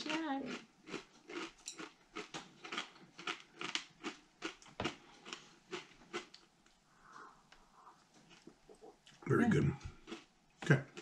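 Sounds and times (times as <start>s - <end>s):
crisp snack crunching: 0.0s - 6.4s.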